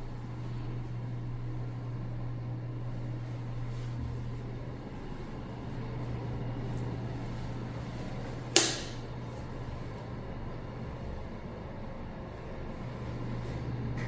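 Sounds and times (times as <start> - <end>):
steady low hum: 0.0 - 14.0
sharp click or snap: 8.6 - 9.0.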